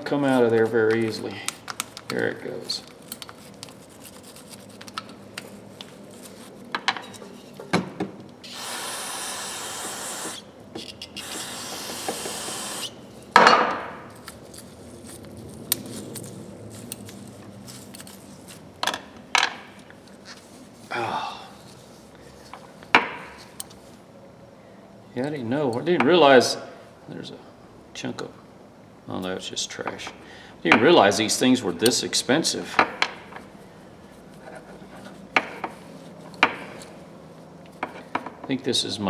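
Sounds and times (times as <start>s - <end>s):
aerosol spray hissing: 8.4s - 10.5s, 11.2s - 12.9s.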